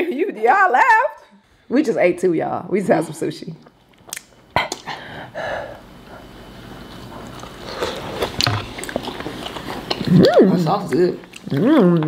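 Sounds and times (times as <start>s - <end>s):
people chewing: 3.6s - 12.0s.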